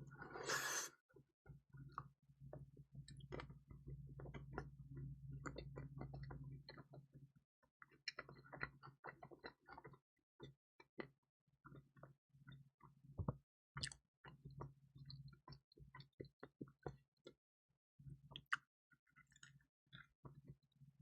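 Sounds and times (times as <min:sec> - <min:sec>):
chewing with wet mouth clicks: 0:03.1 - 0:07.0, 0:07.8 - 0:12.1, 0:13.8 - 0:14.4, 0:18.3 - 0:20.6.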